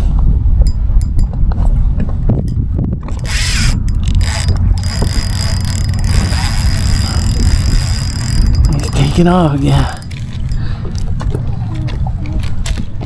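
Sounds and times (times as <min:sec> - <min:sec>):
wind on microphone: 0:00.0 - 0:13.0
fishing reel ratcheting: 0:02.5 - 0:11.1.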